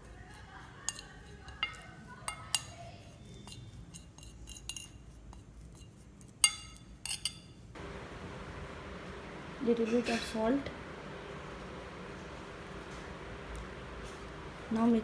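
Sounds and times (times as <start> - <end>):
spoon clinking against bowl: 6.4 - 7.6.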